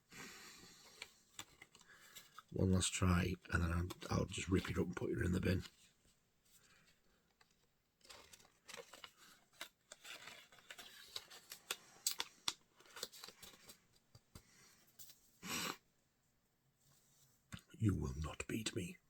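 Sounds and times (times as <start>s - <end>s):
hands crinkling packaging: 6.7s - 13.8s.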